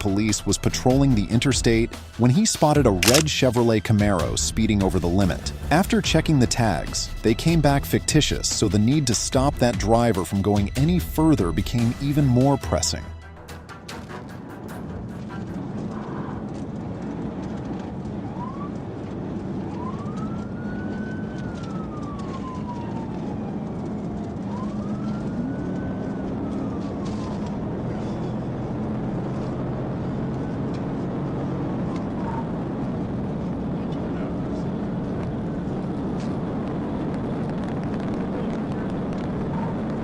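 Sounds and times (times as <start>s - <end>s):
car engine and tyres drone: 14.0s - 40.0s
police siren wailing: 15.4s - 40.0s.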